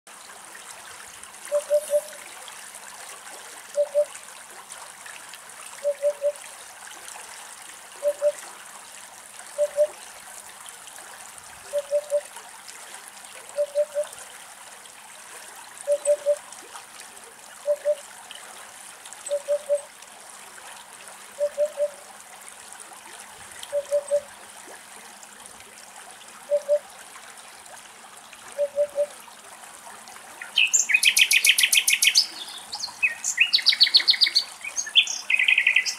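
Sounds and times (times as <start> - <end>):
running water trickling: 0.1 - 35.9
hoopoe calling: 1.5 - 2.2, 3.7 - 4.1, 5.8 - 6.4, 8.0 - 8.4, 9.6 - 10.0, 11.7 - 12.3, 13.5 - 14.1, 15.8 - 16.4, 17.6 - 18.0, 19.3 - 19.9, 21.4 - 22.0, 23.7 - 24.3, 26.5 - 26.8, 28.6 - 29.2, 30.6 - 35.9.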